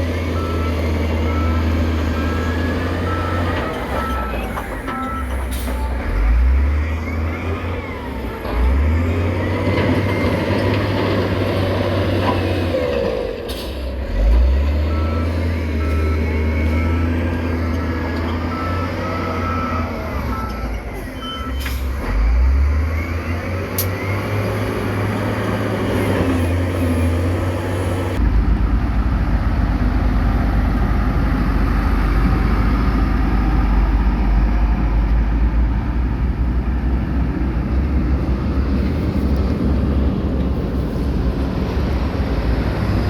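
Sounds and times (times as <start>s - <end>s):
diesel machinery engine revving: 0.0s - 43.0s
reversing alarm beeping: 0.3s - 8.2s, 14.8s - 22.2s.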